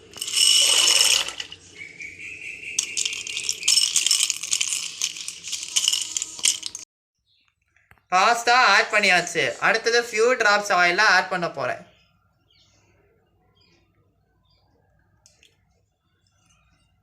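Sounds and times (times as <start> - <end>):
dry pasta rattling into pot: 0.0 - 1.6, 2.8 - 6.8.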